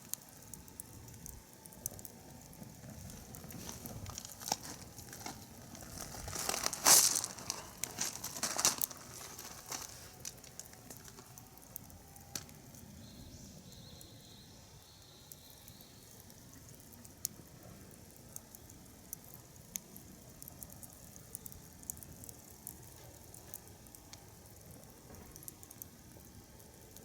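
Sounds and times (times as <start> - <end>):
crinkling and rustling: 2.6 - 12.6
small sharp clicks and pops: 6.9 - 12.9, 15.3 - 27.0.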